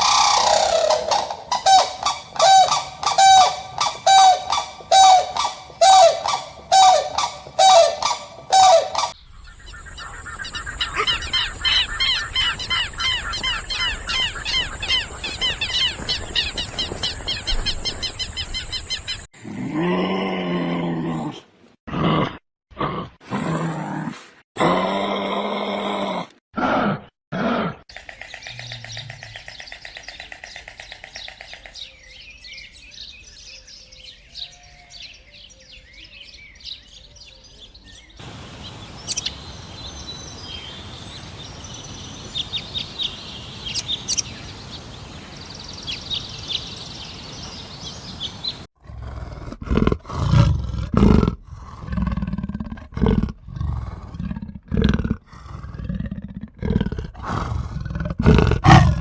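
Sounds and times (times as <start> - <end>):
small birds chirping: 0.0 - 19.3, 27.9 - 48.7
big cat roaring: 48.8 - 59.0.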